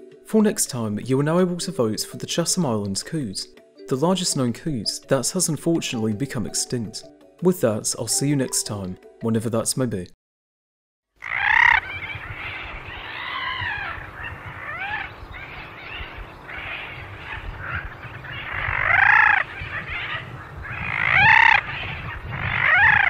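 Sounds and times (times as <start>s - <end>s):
birds squawking: 11.2s - 23.0s.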